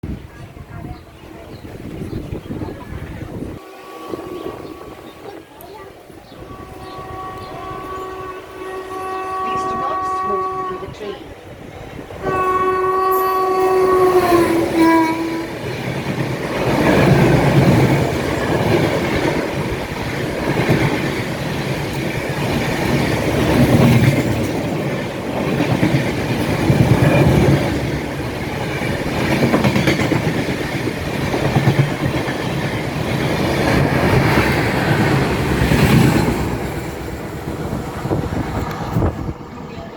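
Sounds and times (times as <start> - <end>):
train horn: 3.3 - 5.6, 6.2 - 11.3, 12.1 - 15.8
train wheels clattering on rails: 4.1 - 39.8.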